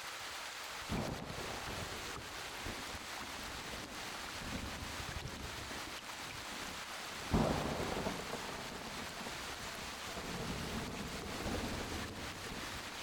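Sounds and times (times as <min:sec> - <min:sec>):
steady rain: 0:00.0 - 0:13.0
thunder crack and rumble: 0:00.9 - 0:02.9, 0:07.3 - 0:13.0.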